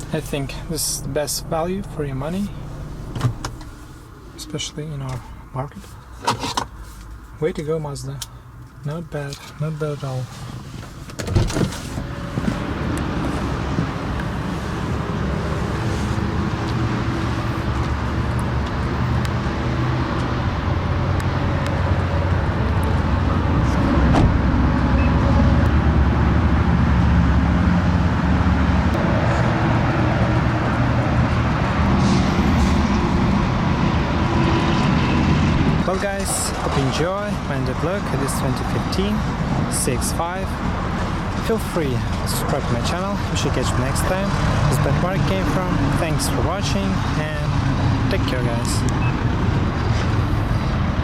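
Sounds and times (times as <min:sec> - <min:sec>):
car engine running: 0:00.0 - 0:07.6, 0:09.8 - 0:51.0.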